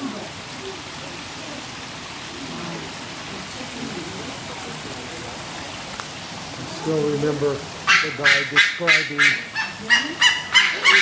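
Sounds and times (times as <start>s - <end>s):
faint murmuring voices: 0.0s - 7.2s
steady rain-like hiss: 0.0s - 11.0s.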